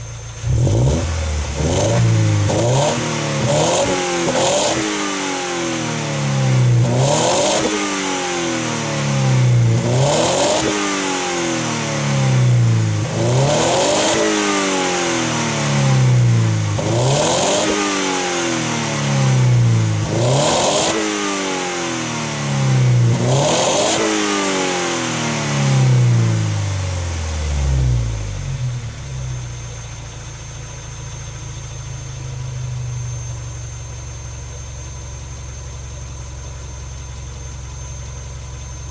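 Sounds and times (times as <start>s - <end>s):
car engine revving: 0.4s - 29.3s.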